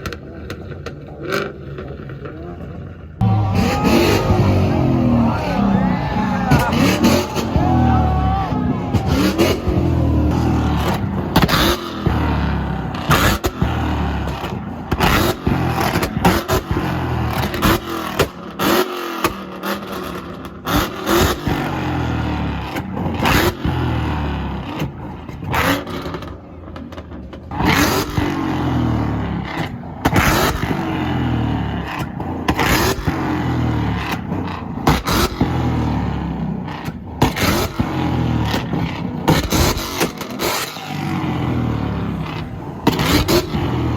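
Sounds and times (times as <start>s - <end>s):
car engine revving: 0.0s - 43.9s
stuttering exhaust rumble: 0.0s - 43.9s
exhaust backfire bangs: 3.2s - 18.6s, 27.5s - 43.9s.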